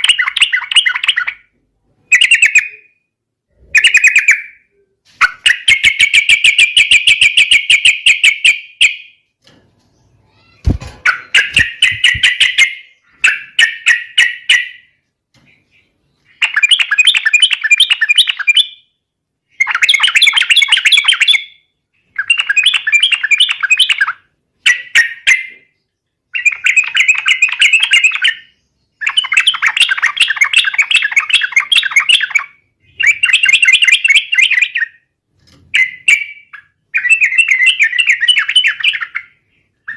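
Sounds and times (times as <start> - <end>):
bird singing bubbling phrases: 2.1 - 4.9.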